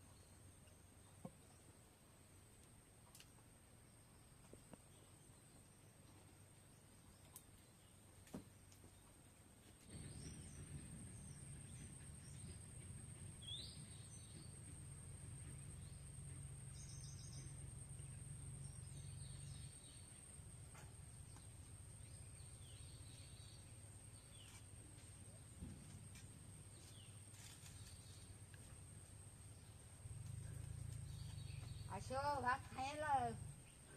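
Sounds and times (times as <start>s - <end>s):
low steady rumble: 9.2s - 33.9s.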